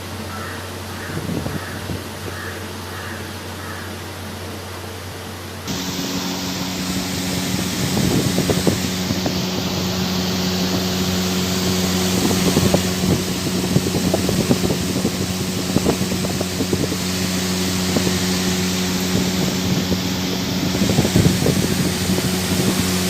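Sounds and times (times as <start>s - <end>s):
cooler motor hum: 0.0s - 23.0s
wind buffeting microphone: 1.0s - 2.4s, 5.7s - 23.0s
rush of moving air: 5.7s - 23.0s.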